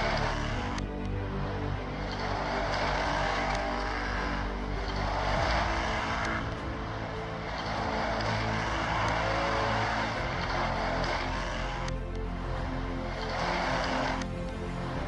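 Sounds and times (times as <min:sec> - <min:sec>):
rc car motor whining: 0:00.0 - 0:00.8, 0:02.0 - 0:12.1.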